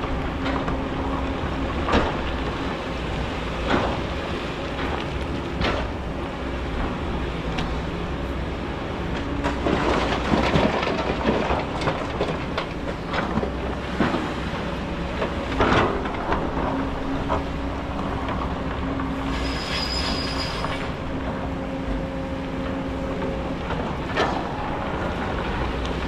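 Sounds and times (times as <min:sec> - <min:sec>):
excavator engine rumble: 0:00.0 - 0:26.0
high-pitched squeal: 0:19.3 - 0:20.9.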